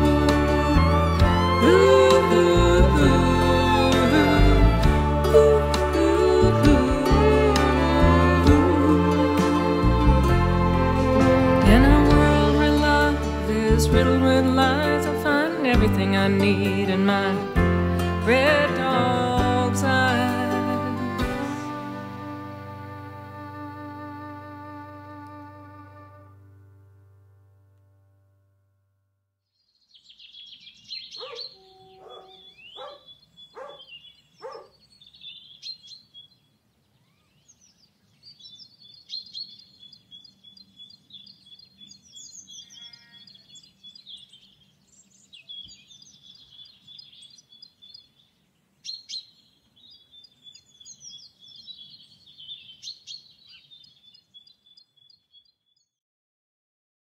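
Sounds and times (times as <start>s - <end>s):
small birds chirping and trilling: 29.6s - 56.0s
sharper lower bird calls: 30.0s - 36.4s.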